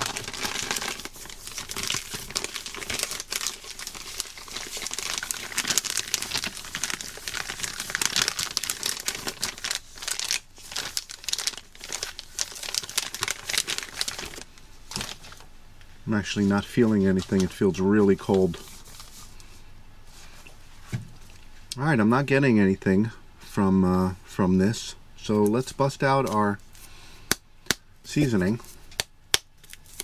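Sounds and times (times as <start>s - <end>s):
plastic bag crinkling: 0.0s - 15.5s, 16.1s - 19.4s.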